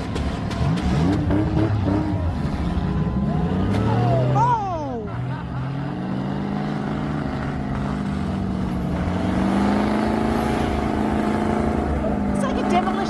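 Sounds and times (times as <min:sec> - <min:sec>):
engine running at high revs: 0:00.0 - 0:13.0.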